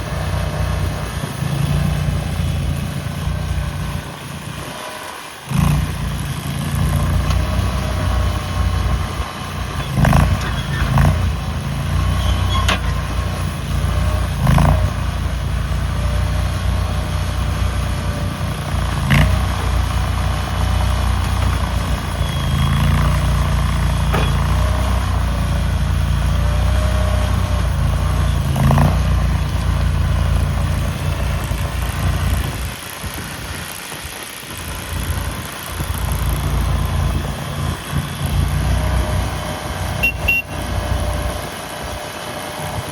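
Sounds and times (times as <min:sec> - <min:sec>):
skid loader engine running: 0:00.0 - 0:42.9
sharp knocks: 0:24.1 - 0:24.6.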